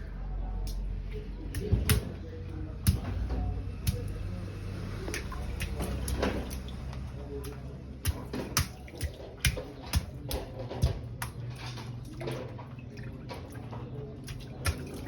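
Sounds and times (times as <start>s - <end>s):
rainwater dripping and splashing: 3.7s - 15.0s.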